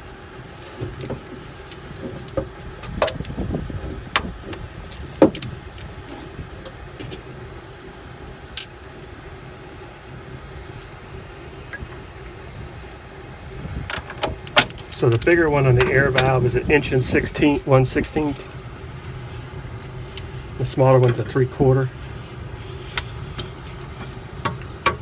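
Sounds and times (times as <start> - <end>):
steady low hum: 0.0 - 25.0
metal clinks and knocks: 7.0 - 7.3, 8.6 - 8.9.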